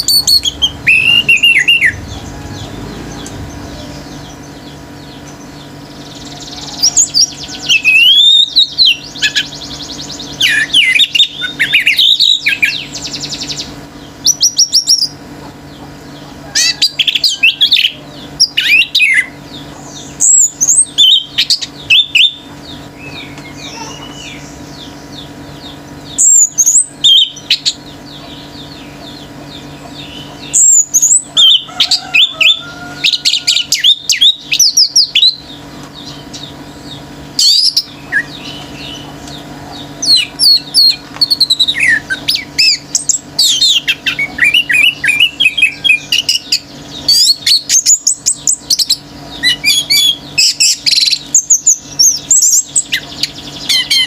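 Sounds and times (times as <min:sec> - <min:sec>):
bird singing whistled phrases: 0:00.0 - 0:02.7, 0:06.3 - 0:09.6
buzzy bird trill: 0:00.0 - 0:54.0.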